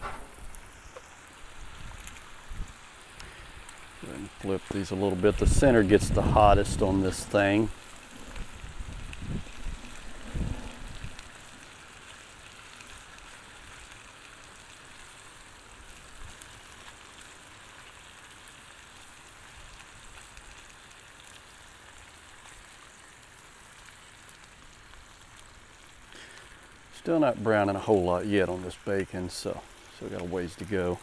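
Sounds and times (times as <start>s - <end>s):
low thump: 0.0s - 0.6s
food sizzling on a griddle: 0.0s - 31.0s.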